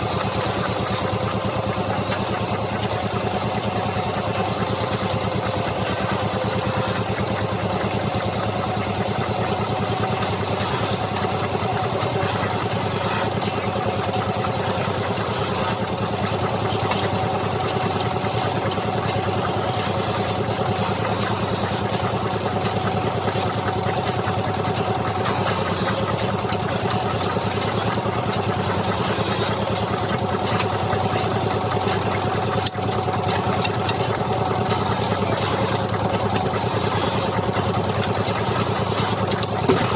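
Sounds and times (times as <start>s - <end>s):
lathe motor humming: 0.0s - 39.9s.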